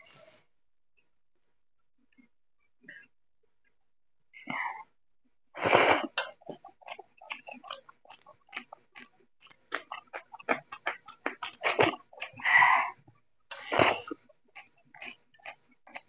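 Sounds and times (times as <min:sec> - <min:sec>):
open-mouth chewing: 0:06.0 - 0:16.0.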